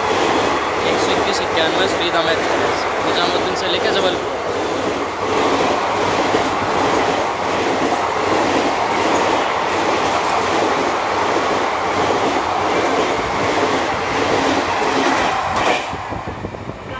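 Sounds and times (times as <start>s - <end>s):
train wheels rattling on rails: 0.0s - 16.9s.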